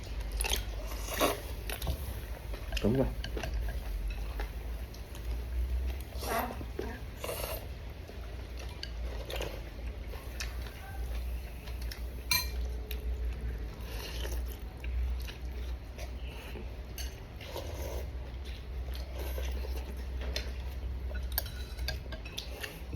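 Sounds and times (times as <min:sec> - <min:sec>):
chewing: 0:00.0 - 0:22.9
utensils clinking against bowl: 0:12.3 - 0:12.7, 0:20.2 - 0:22.9.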